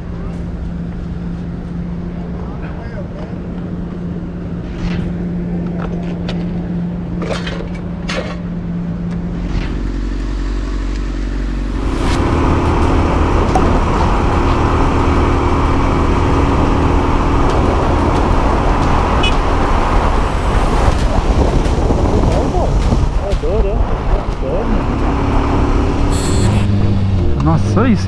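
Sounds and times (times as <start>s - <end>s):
road noise: 0.0s - 28.0s
vehicle engine running: 0.0s - 28.0s
rushing roar: 9.7s - 28.0s.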